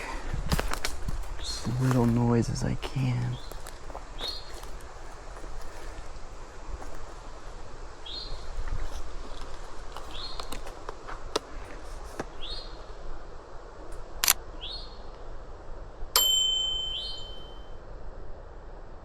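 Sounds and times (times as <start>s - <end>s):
songbird calling: 1.3s - 4.6s, 8.0s - 8.5s, 10.1s - 10.5s, 12.3s - 12.9s, 14.6s - 15.1s, 16.6s - 17.6s
brief ringing tone: 16.2s - 17.8s.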